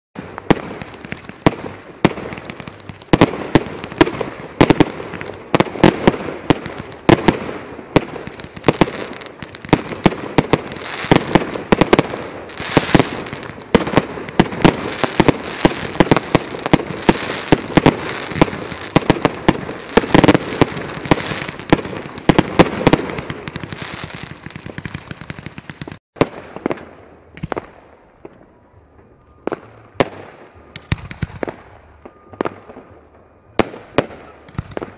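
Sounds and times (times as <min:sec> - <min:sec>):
fireworks crackling: 0:00.2 - 0:28.4
fireworks bangs: 0:00.2 - 0:34.9.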